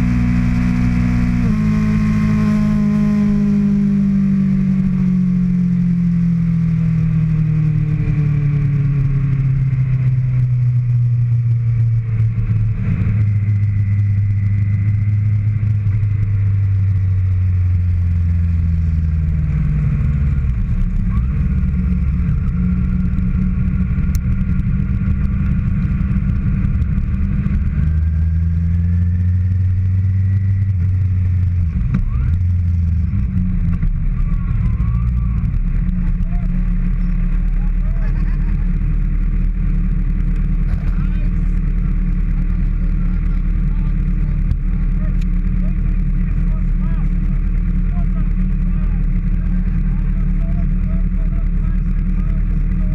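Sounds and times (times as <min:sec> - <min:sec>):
motorcycle engine running: 0:00.0 - 0:52.9.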